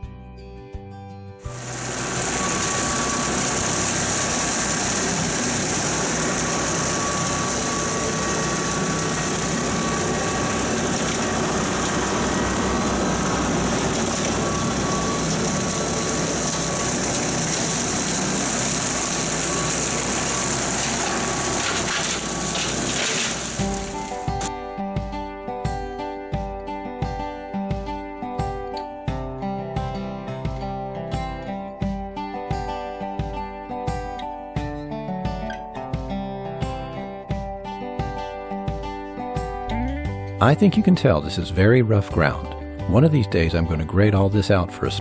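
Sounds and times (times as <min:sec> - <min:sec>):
tractor diesel engine droning: 0:01.5 - 0:24.5, 0:39.7 - 0:45.0.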